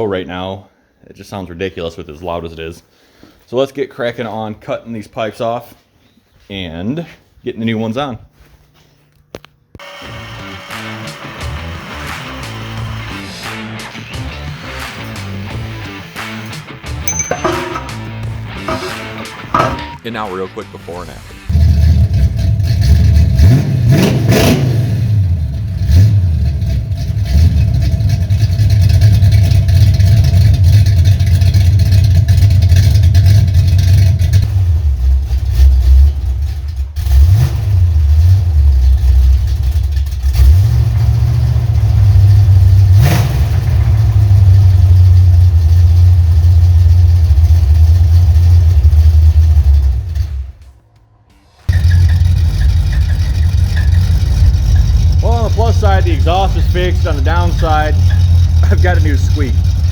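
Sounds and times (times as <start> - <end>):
car engine idling: 25.2 - 50.6, 51.5 - 59.9.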